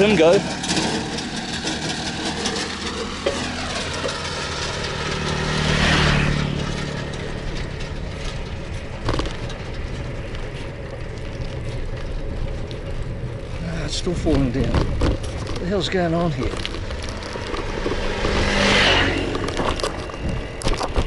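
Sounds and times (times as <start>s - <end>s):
road noise: 0.0s - 21.0s
car passing close by: 3.0s - 7.4s, 17.1s - 20.6s.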